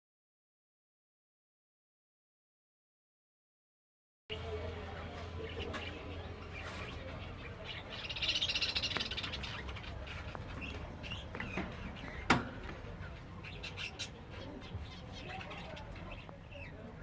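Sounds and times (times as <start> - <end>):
small finches chirping: 4.3 - 17.0.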